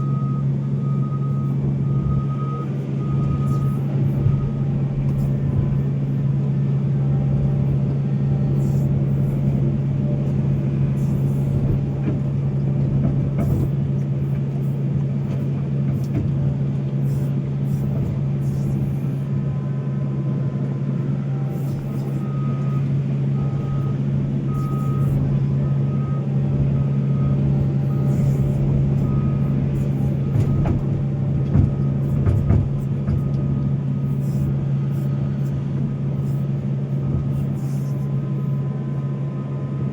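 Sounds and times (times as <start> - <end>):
reversing alarm beeping: 0.0 - 10.2, 17.0 - 35.5
excavator diesel engine running: 0.0 - 39.9
scattered knocks: 30.3 - 33.4.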